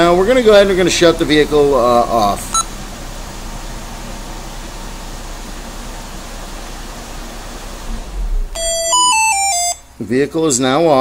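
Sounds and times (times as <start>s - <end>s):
car engine idling: 0.0s - 11.0s
descending phone app chime: 8.6s - 9.9s.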